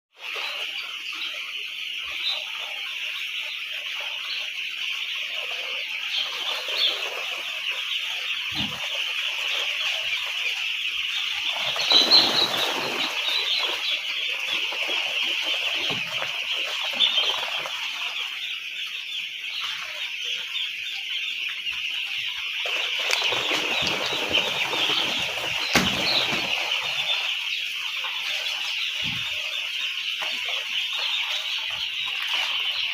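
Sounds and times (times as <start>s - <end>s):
chicks peeping: 0.1s - 32.9s.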